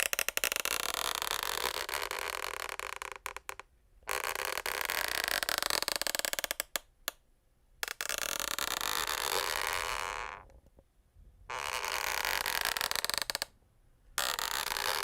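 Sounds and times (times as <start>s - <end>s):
wooden floorboards creaking: 11.5s - 13.5s.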